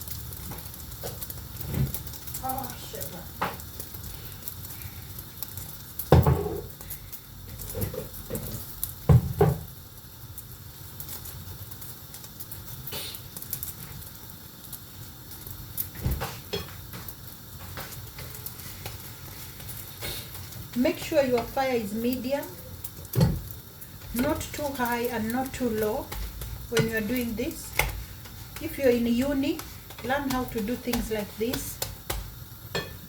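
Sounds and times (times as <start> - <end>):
food sizzling in a frying pan: 0.0 - 33.0
cookware knocking against pan: 30.0 - 33.0.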